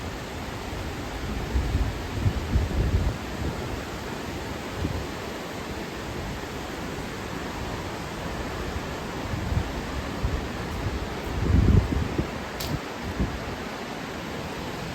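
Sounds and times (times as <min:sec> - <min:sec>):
wind buffeting microphone: 0:00.8 - 0:03.9, 0:09.2 - 0:13.6.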